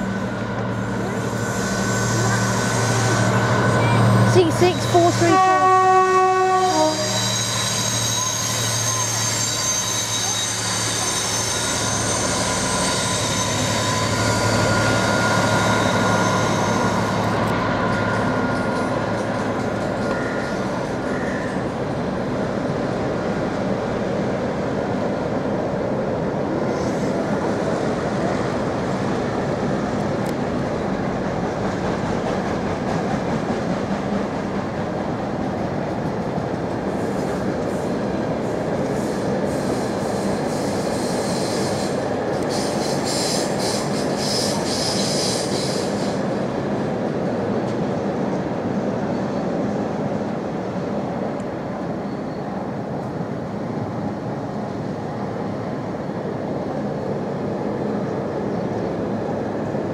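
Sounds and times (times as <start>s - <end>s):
train wheels rumbling on rails: 0.0s - 59.9s
wheel squeal: 0.8s - 3.8s, 6.8s - 19.0s.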